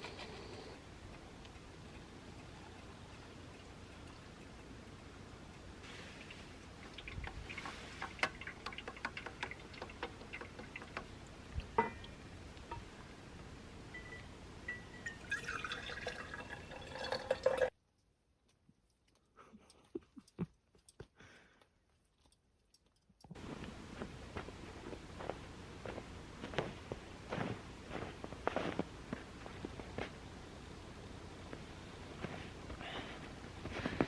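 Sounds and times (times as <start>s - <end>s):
liquid dripping and trickling: 2.0s - 12.9s, 15.0s - 17.8s
liquid pouring: 5.9s - 12.2s, 15.0s - 17.7s.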